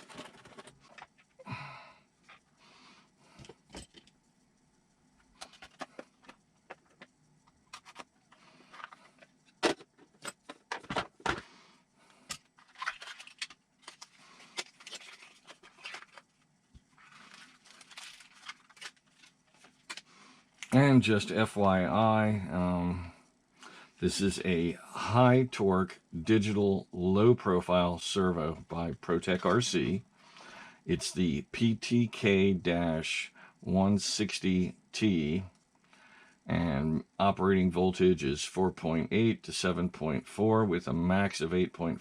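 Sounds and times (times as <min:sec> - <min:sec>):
plastic and metal parts clicking: 0:12.3 - 0:16.3.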